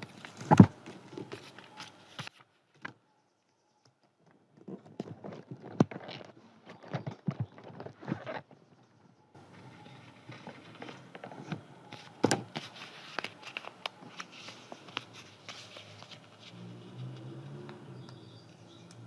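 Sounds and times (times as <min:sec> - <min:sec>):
paper rustling: 0:00.0 - 0:02.8, 0:09.4 - 0:17.6.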